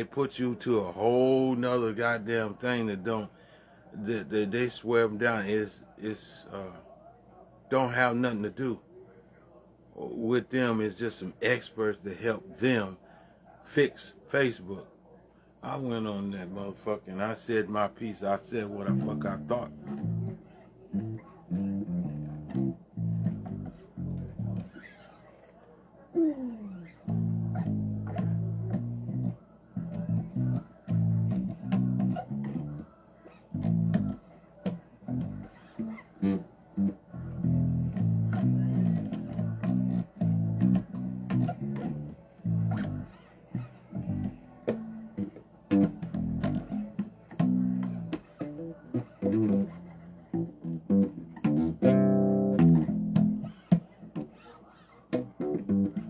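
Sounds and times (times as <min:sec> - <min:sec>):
bass guitar plucked notes: 0:18.9 - 0:24.8, 0:27.0 - 0:32.9, 0:33.5 - 0:54.3, 0:55.1 - 0:56.0
bass string clicks: 0:21.0 - 0:24.8, 0:27.1 - 0:32.7, 0:33.6 - 0:54.3.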